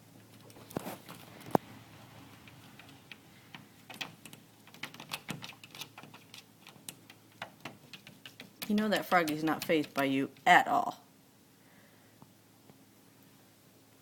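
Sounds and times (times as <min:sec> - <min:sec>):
cat claws tapping on glass: 0:02.4 - 0:10.5.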